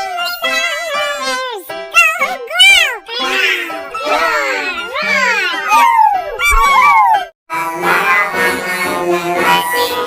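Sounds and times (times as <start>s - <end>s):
children's music with reedy tone: 0.0s - 10.0s.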